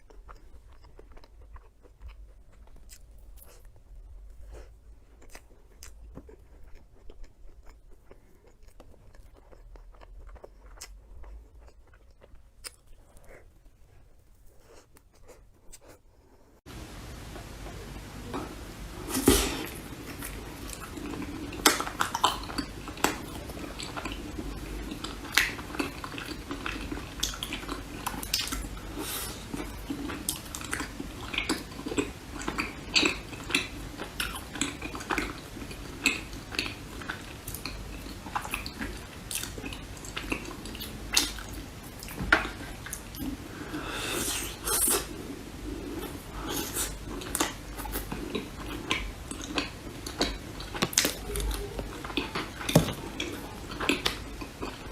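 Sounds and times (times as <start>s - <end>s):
chewing: 0.0s - 16.5s, 17.4s - 54.9s.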